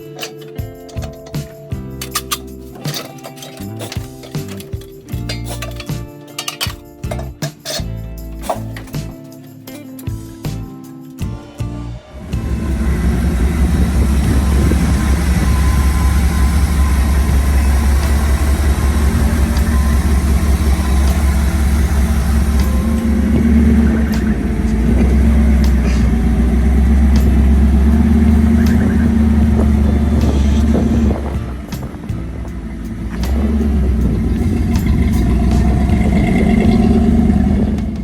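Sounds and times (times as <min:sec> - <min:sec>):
engine running steadily: 0:12.1 - 0:38.0.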